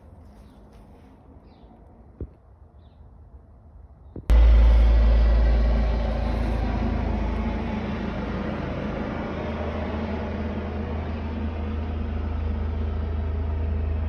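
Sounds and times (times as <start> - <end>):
car engine rumbling: 4.3 - 14.0.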